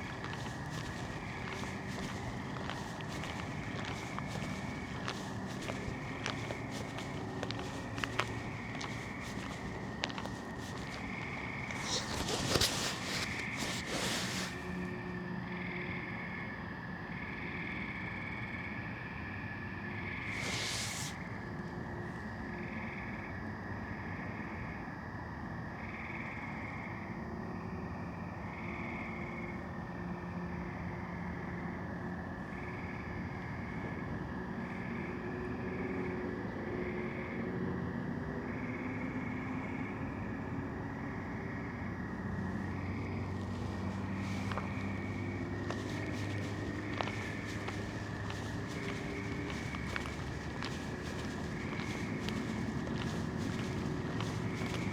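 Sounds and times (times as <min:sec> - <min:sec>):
footsteps: 0:00.0 - 0:14.9, 0:20.3 - 0:21.2, 0:42.5 - 0:54.9
frogs calling: 0:00.0 - 0:15.0, 0:38.6 - 0:54.9
low traffic rumble: 0:00.0 - 0:15.2, 0:40.5 - 0:54.9.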